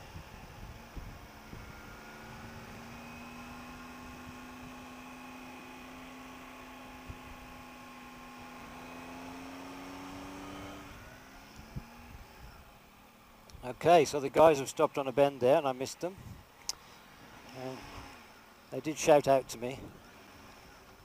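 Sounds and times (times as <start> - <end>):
motorcycle engine humming: 0.0 - 21.0.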